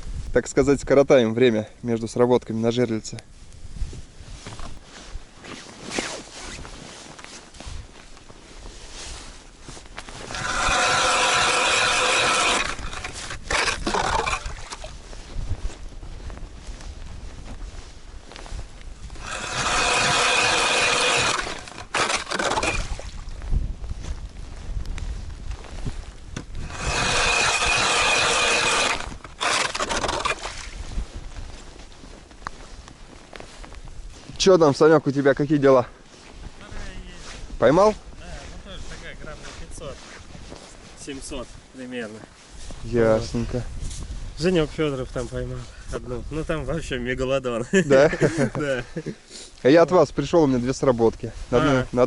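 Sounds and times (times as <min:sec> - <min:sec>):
scrapes and knocks: 0:10.0 - 0:14.9, 0:19.2 - 0:23.0
ice auger grinding through ice: 0:10.1 - 0:14.9, 0:19.1 - 0:23.2, 0:26.4 - 0:30.8.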